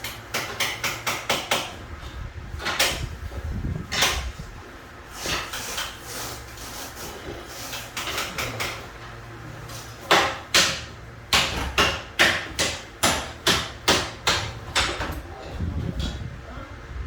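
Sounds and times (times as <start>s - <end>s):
hammer striking: 10.1s - 15.1s.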